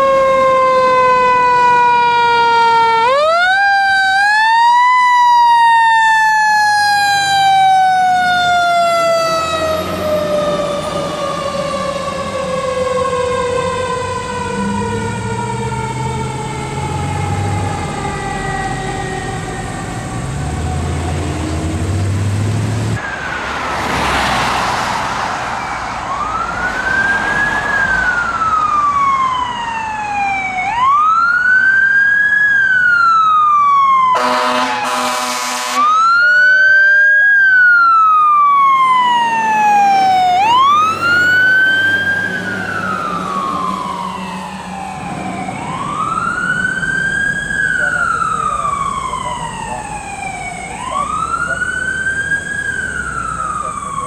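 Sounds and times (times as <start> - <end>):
electronic siren wailing: 0.0 - 21.5, 25.5 - 54.0
diesel engine: 6.2 - 33.0, 37.2 - 54.0
siren tone falling in pitch: 23.0 - 31.4, 32.9 - 54.0
air horn blast: 34.2 - 36.7.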